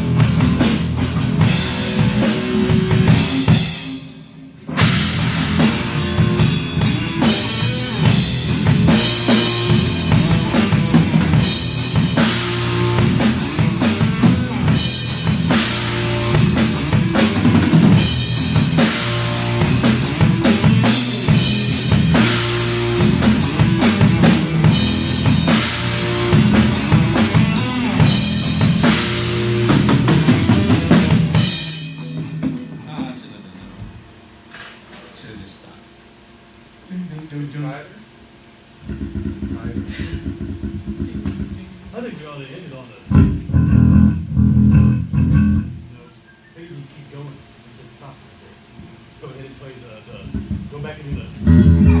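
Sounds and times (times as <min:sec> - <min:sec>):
low bass notes: 0:00.0 - 0:03.7, 0:04.8 - 0:31.6, 0:38.8 - 0:41.8, 0:43.1 - 0:45.9, 0:50.2 - 0:52.0
rock band playing loudly: 0:00.0 - 0:33.4, 0:38.9 - 0:41.8, 0:43.1 - 0:45.9, 0:50.2 - 0:52.0
drum kit: 0:00.0 - 0:35.4, 0:38.6 - 0:46.1, 0:50.0 - 0:52.0.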